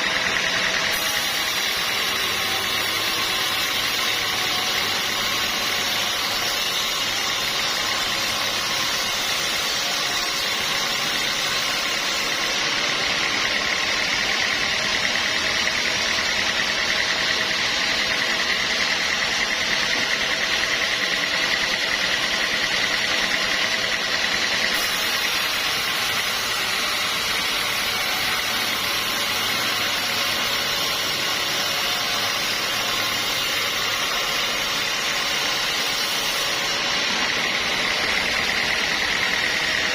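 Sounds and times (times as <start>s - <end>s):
high machine whine: 0.0s - 39.9s
sawmill machinery running: 0.0s - 39.9s.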